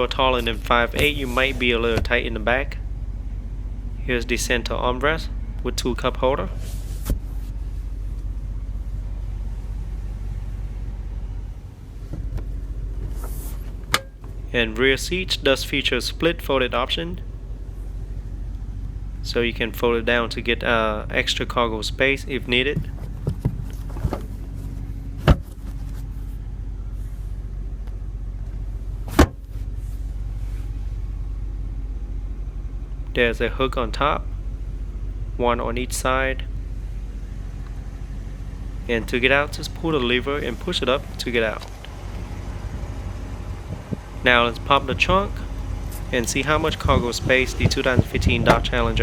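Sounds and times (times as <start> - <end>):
car cabin rumble: 0.0 - 49.0
seatback latch clacks: 0.4 - 2.4, 22.7 - 26.2, 27.8 - 29.7.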